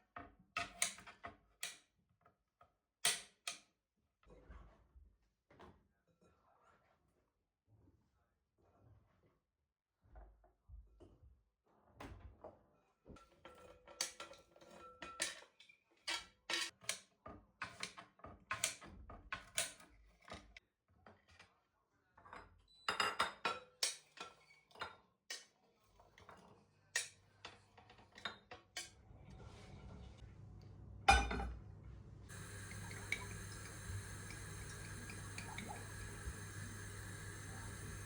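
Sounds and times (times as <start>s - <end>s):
dishes and utensils clinking: 31.1s - 31.6s.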